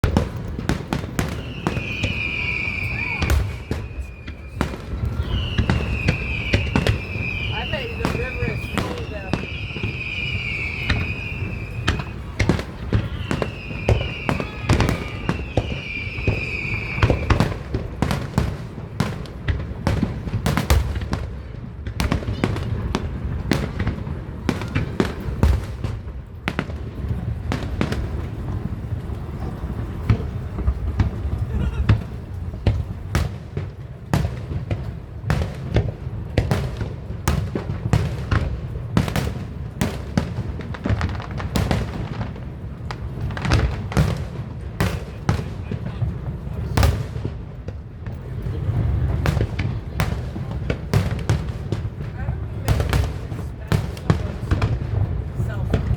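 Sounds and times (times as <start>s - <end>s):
fireworks bangs and crackles: 0.0s - 55.9s
high falling whistle: 1.2s - 17.5s.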